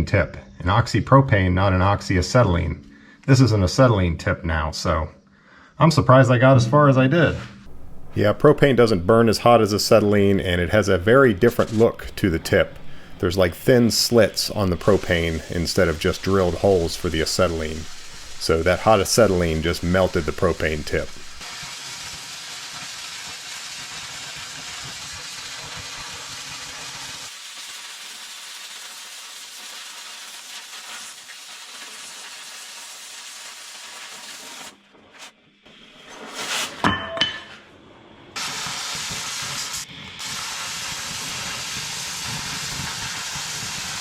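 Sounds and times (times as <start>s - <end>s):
cutting torch hissing: 7.7s - 34.8s, 38.4s - 44.0s.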